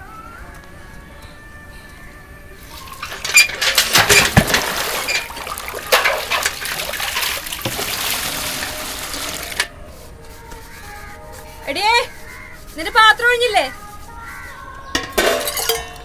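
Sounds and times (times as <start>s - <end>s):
water splashing and pouring: 2.7s - 9.7s
pail knocking: 2.8s - 9.7s, 15.0s - 16.0s.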